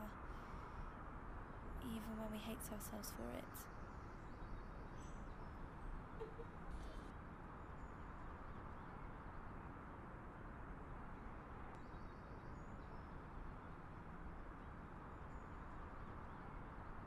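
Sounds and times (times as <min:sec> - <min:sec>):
faint high bird chirps: 0:03.2 - 0:07.1.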